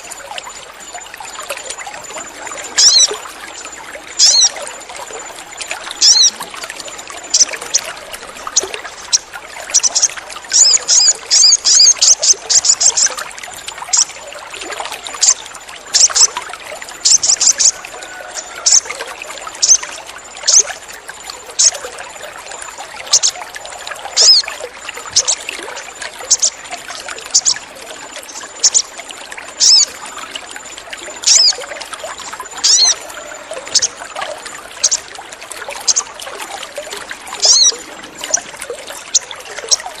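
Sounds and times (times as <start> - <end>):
water trickling: 0.0 - 40.0
bird giving sharp high cheeps: 32.6 - 33.0.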